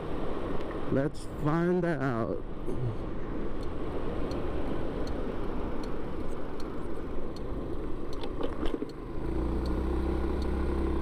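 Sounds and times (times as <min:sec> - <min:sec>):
scooter engine humming: 0:06.2 - 0:11.0.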